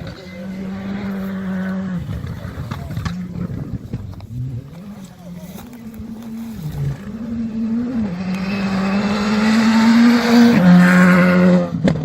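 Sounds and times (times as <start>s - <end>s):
rally car engine at full throttle: 0.0s - 12.0s.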